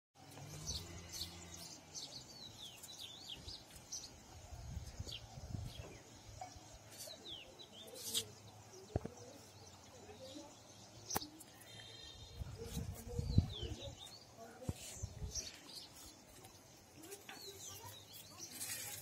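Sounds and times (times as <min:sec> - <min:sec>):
songbirds chirping: 0:00.2 - 0:19.0
wind rumble on microphone: 0:04.4 - 0:06.0, 0:12.3 - 0:14.0.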